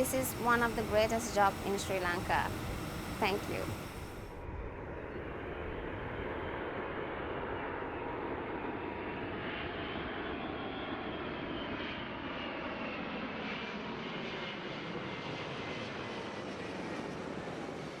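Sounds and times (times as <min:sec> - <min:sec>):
faint high whining tones: 0:00.0 - 0:04.3
jet engine rush: 0:00.0 - 0:06.6.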